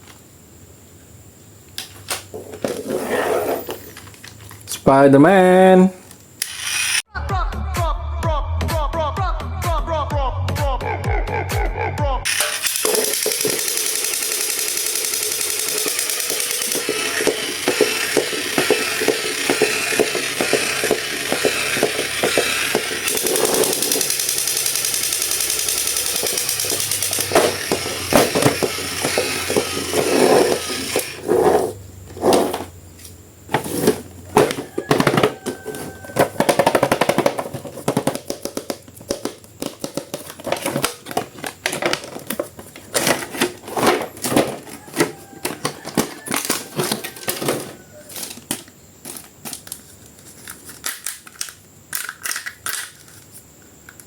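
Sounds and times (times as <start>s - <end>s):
clicks of handling a plastic toy: 34.9s - 53.3s.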